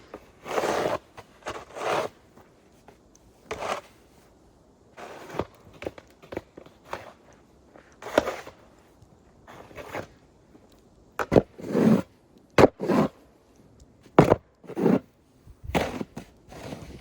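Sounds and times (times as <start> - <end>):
snow shovel knocking and scraping: 0.0 - 4.1, 5.0 - 8.7, 9.5 - 10.2, 11.2 - 13.2, 14.0 - 17.0.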